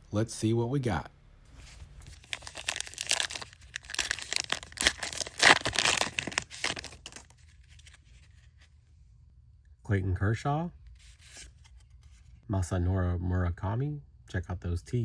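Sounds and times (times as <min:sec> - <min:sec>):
card pack wrapper tearing: 0:02.0 - 0:08.0.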